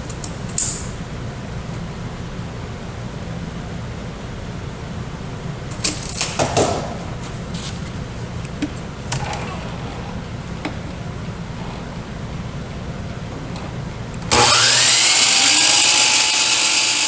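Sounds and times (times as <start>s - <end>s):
steady low hum: 6.7s - 16.8s.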